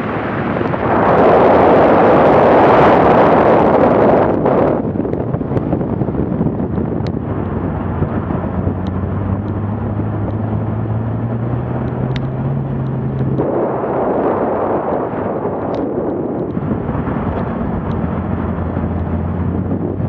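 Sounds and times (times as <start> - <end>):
wind rush: 0.0 - 20.0
car engine running: 2.0 - 20.0
faint sharp ticks: 11.8 - 13.4.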